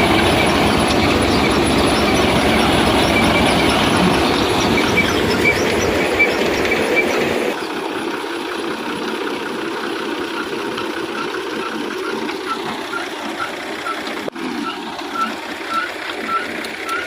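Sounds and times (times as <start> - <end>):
regular high squeak: 0.0 - 7.6, 11.1 - 17.0
thresher mechanical clatter: 0.0 - 17.0.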